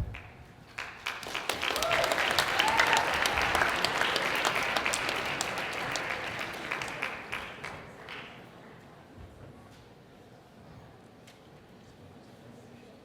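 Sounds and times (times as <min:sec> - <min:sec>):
audience applauding: 0:00.2 - 0:08.6.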